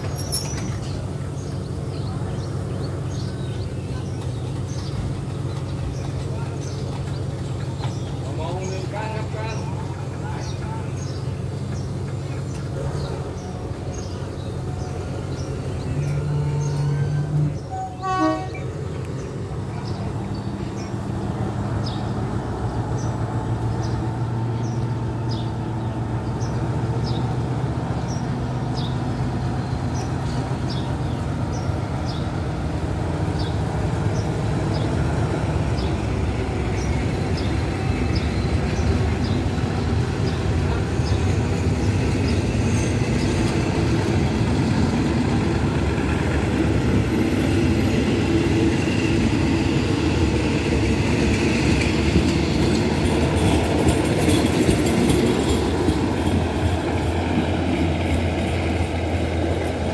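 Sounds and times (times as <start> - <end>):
diesel train engine humming: 0.0 - 59.9
train horn toot: 16.1 - 18.8.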